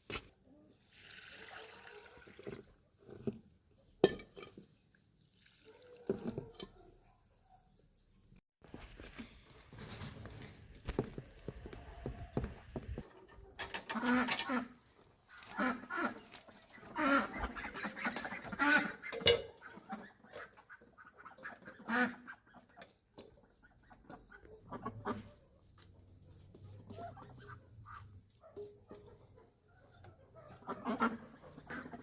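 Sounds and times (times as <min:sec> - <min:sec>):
chickens clucking: 0:11.7 - 0:32.0.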